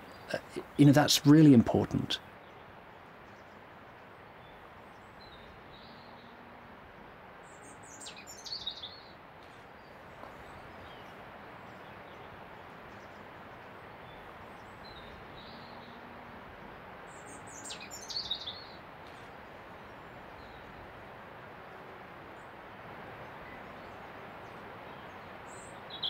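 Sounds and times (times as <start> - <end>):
bird chirping: 17.1 - 19.2, 23.5 - 26.0.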